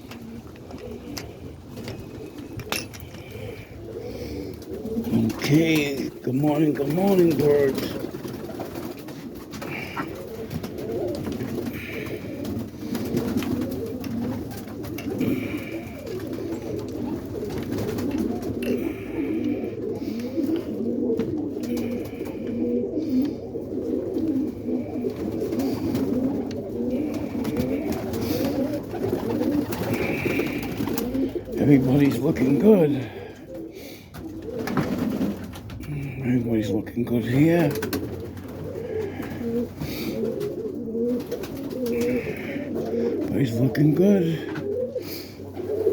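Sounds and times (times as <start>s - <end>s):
pigeons cooing: 0.0s - 45.9s.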